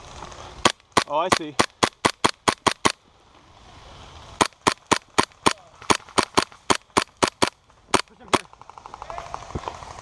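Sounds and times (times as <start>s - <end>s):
airsoft gun shots: 0.6s - 3.0s, 4.4s - 8.5s.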